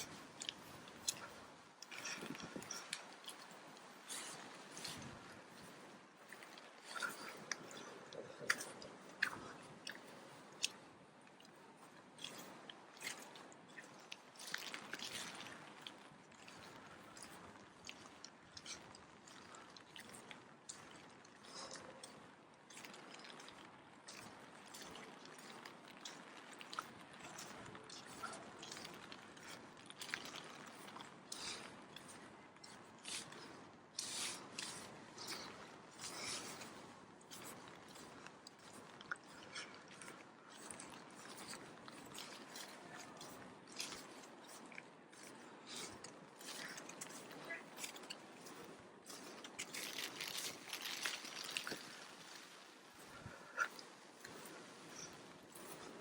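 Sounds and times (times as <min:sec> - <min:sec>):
footsteps squelching on wet ground: 0:11.4 - 0:56.0.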